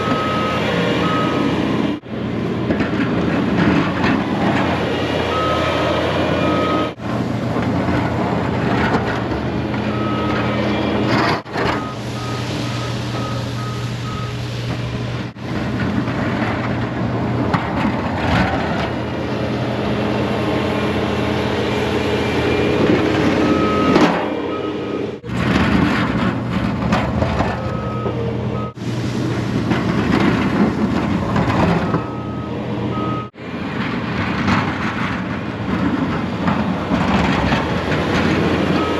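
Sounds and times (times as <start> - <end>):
vehicle backup alarm beeping: 0.0 - 1.9, 5.2 - 7.0, 9.8 - 14.6, 23.4 - 25.2, 27.6 - 28.8, 31.8 - 33.4, 38.7 - 38.9
engine running: 0.0 - 38.9.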